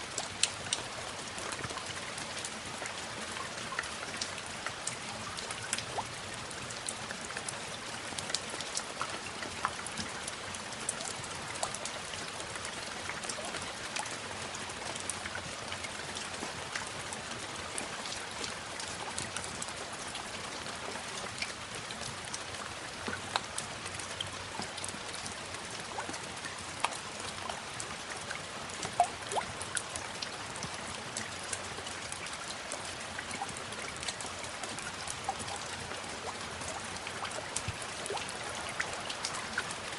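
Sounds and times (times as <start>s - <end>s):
raindrops ticking: 0.0s - 39.9s
steady rain: 0.0s - 39.9s.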